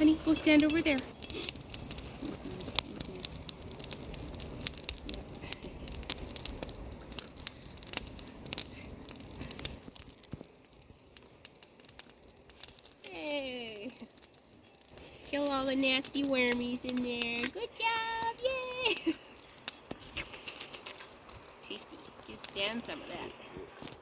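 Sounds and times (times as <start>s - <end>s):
small clicks and crackly rustling: 0.0s - 24.0s
goat eating: 13.9s - 24.0s.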